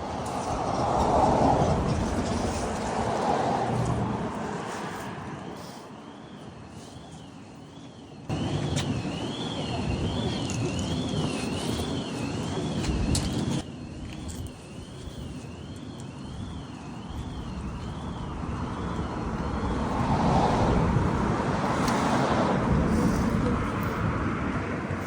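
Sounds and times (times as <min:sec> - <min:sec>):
road vehicle passing: 0:00.0 - 0:07.2, 0:16.8 - 0:25.0.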